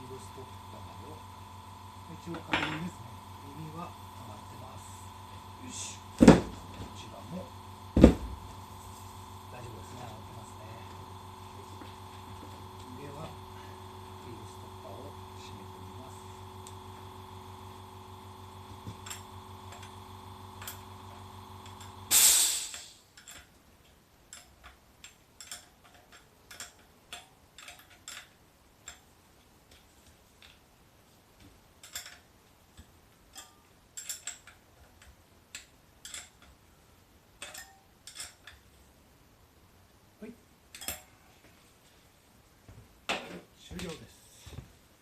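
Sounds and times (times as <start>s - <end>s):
air compressor humming: 0.0s - 23.1s
hiss of released air: 22.1s - 23.0s
tools clicking and tapping: 22.7s - 30.6s, 31.4s - 36.6s, 37.4s - 38.8s, 40.7s - 41.1s.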